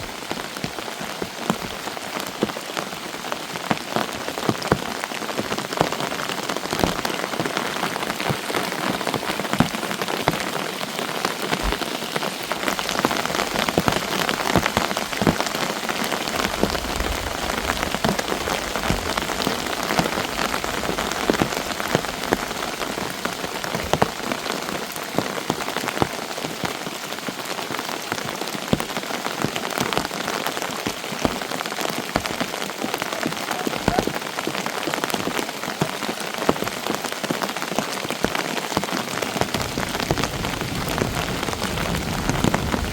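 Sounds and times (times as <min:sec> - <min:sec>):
rain falling: 0:00.0 - 0:42.9
raindrops ticking: 0:00.0 - 0:42.9.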